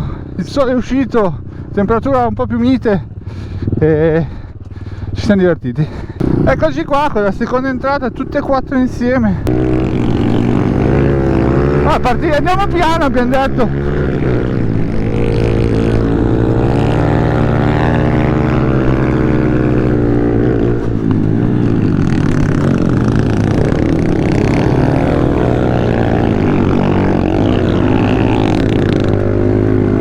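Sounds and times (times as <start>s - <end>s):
small motorbike engine revving: 6.2s - 6.7s, 9.4s - 30.0s.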